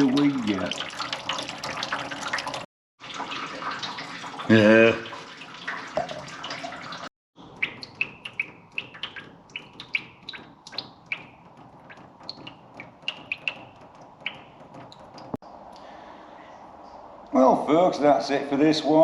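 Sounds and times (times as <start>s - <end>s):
liquid pouring: 0.0s - 7.1s
coolant dripping plinks: 0.0s - 15.9s.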